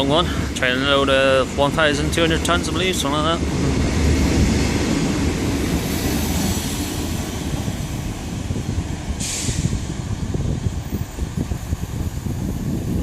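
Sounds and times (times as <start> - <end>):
freight train wheels rumbling: 0.0 - 13.0
short hiss: 9.2 - 9.8.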